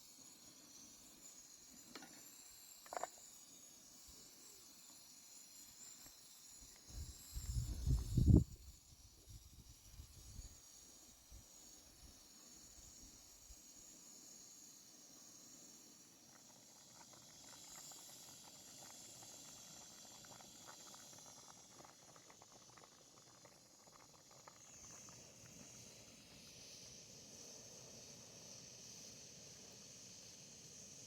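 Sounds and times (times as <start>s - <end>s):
steady high hiss: 23.6s - 31.0s.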